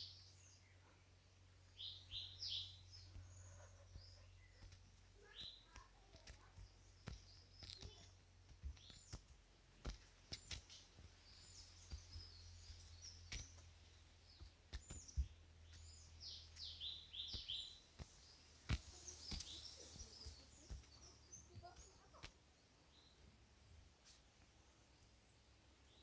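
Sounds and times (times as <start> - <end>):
low steady hum: 0.0 - 26.0
small birds chirping: 0.0 - 26.0
faint clicks and taps: 2.9 - 22.5.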